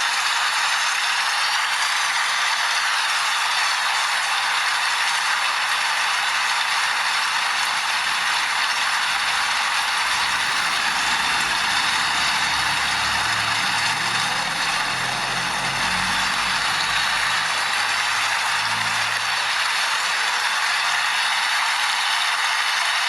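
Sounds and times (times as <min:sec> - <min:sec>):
steady rain falling: 0:00.1 - 0:22.9
low sustained musical notes: 0:09.0 - 0:19.6.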